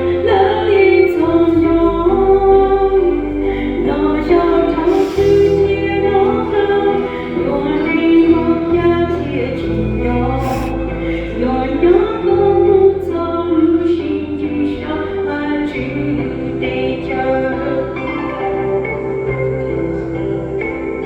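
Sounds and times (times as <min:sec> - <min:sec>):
group singing a hymn: 0:00.0 - 0:13.7
instrumental accompaniment with bass: 0:00.0 - 0:21.0.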